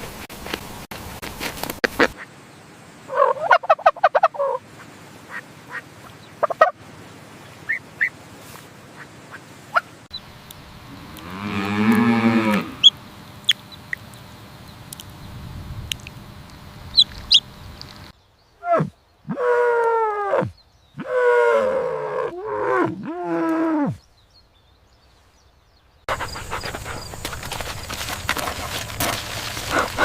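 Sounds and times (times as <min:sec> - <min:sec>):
farm animal calls: 0:03.1 - 0:04.6, 0:10.8 - 0:14.0, 0:26.1 - 0:30.0.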